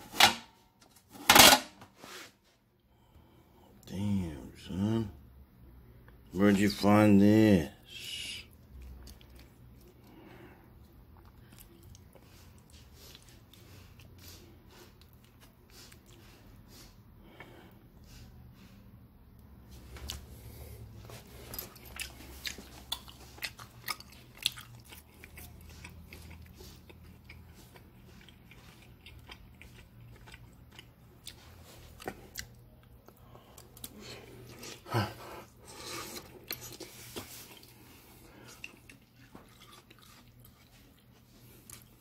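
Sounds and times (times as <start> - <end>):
person chewing food: 8.5 - 42.0.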